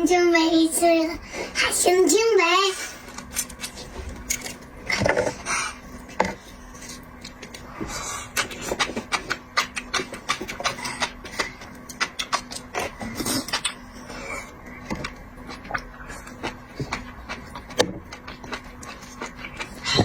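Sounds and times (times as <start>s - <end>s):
shellfish crunching and clicking: 6.8s - 13.9s.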